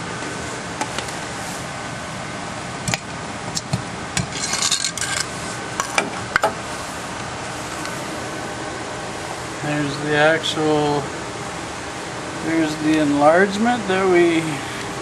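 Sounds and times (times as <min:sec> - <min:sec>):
ventilation hum: 0:00.0 - 0:15.0
short scraping rattle: 0:04.3 - 0:06.0.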